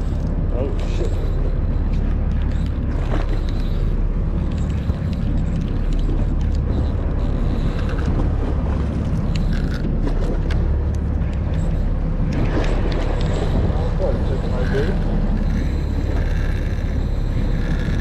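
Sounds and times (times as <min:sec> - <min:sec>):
boat engine drone: 0:00.0 - 0:18.0
faint clicks: 0:01.8 - 0:13.6.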